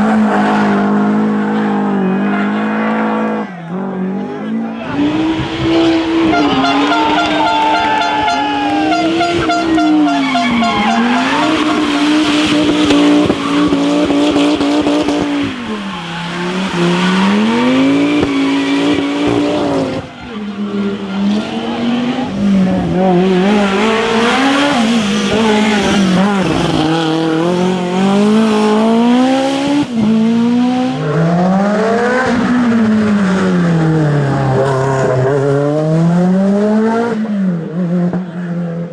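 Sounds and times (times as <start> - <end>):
rally car engines revving: 0.0 - 38.9
tyre squeal: 4.8 - 21.8.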